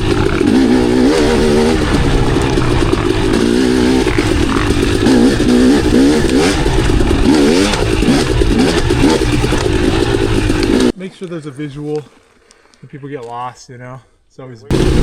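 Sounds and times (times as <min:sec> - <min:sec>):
dirt bike engine revving: 0:00.0 - 0:10.9, 0:14.7 - 0:15.0
bike clattering over rough ground: 0:00.0 - 0:12.5.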